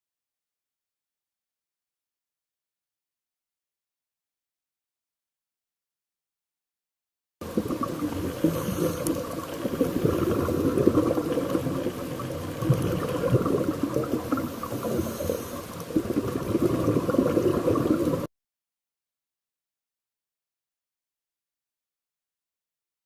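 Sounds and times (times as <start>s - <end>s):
water noise: 7.4s - 18.3s.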